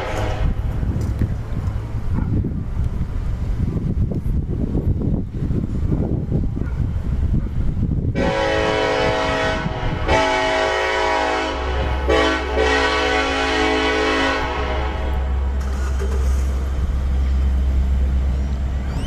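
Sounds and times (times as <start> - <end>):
locomotive air horn blasts: 0.0 - 0.6, 8.1 - 15.9
passing train rumble: 0.0 - 19.0
wind rumble on microphone: 0.0 - 19.0.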